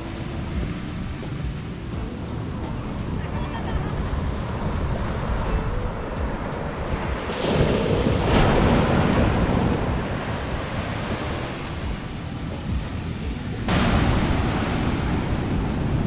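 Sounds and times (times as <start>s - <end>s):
ocean waves breaking: 0.0s - 16.0s
wind buffeting microphone: 0.0s - 16.0s.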